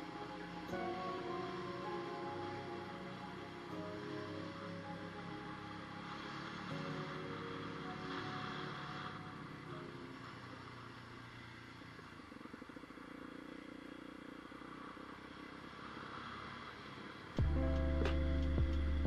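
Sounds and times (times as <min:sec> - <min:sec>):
motorcycle engine running: 0:10.7 - 0:19.0.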